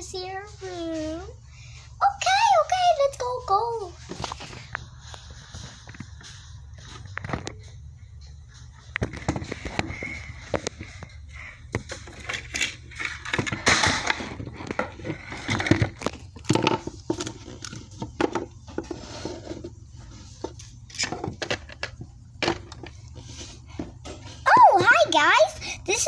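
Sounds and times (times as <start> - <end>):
plastic toys tapping and clicking: 20.4 - 22.9.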